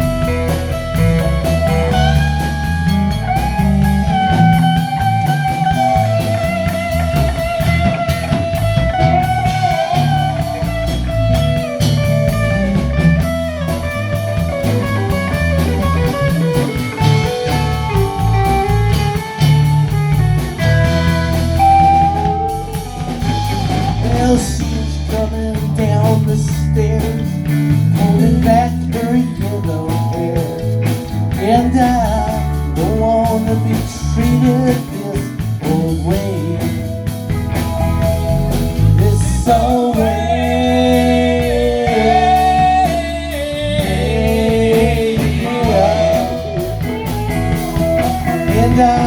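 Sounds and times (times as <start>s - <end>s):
electric guitar solo: 0.0s - 24.7s, 36.9s - 39.4s, 45.5s - 49.0s
bass guitar: 0.0s - 49.0s
drums: 0.0s - 49.0s.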